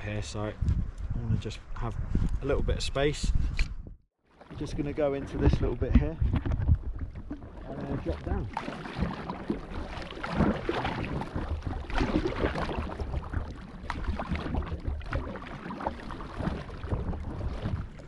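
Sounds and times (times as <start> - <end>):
wind rumble on microphone: 0.0 - 4.0, 4.6 - 8.5, 16.4 - 18.0
kayak paddle splashing: 4.3 - 18.0
water washing against hull: 4.3 - 18.0.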